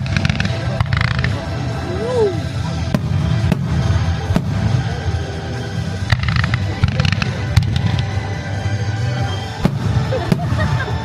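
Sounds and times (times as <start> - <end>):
crackling firework shells: 0.0 - 1.8, 5.9 - 8.3
background music: 0.0 - 11.0
constant low rumble: 0.0 - 11.0
fireworks bangs: 9.6 - 10.9.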